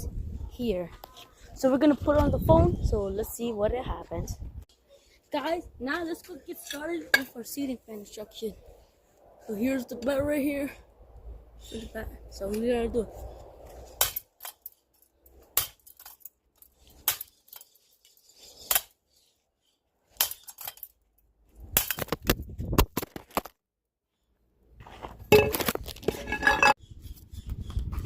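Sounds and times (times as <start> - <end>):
fan parts clattering and rattling: 25.3 - 26.8.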